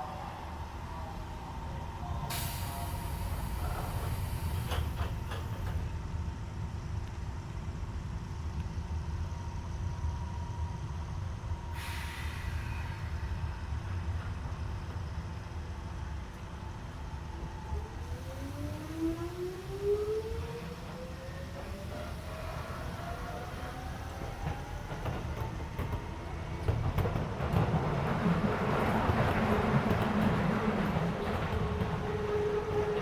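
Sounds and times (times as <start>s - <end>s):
train car rumble: 0.0s - 18.7s, 19.3s - 33.0s
air hiss: 2.3s - 5.6s, 11.7s - 13.9s.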